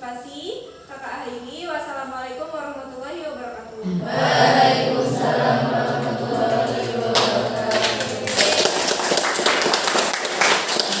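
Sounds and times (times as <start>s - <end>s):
students chanting in unison: 3.8s - 11.0s.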